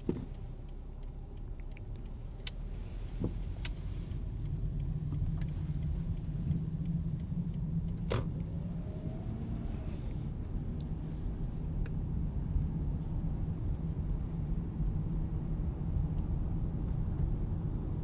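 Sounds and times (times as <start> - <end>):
light clicks and rattles: 0.0 - 8.8
car engine and road rumble: 0.0 - 18.0.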